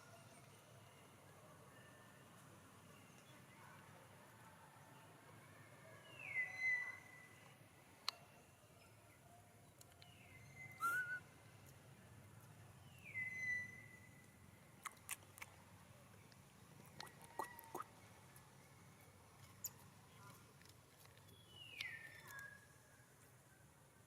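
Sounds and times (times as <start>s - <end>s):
faint sharp clicks: 7.4s - 8.2s, 16.3s - 17.9s
baby monkey whistled coo calls: 10.6s - 11.2s.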